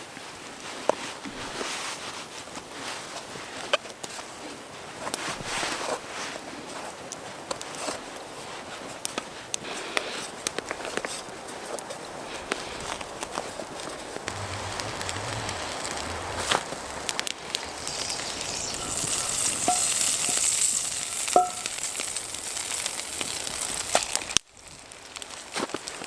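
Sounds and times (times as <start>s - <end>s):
campfire crackling: 9.0s - 26.0s
food sizzling in a pan: 14.3s - 26.0s.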